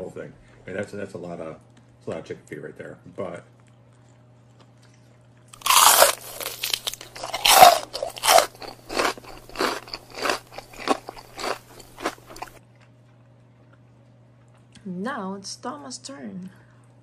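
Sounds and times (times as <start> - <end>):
crunching and chewing: 3.5 - 14.8.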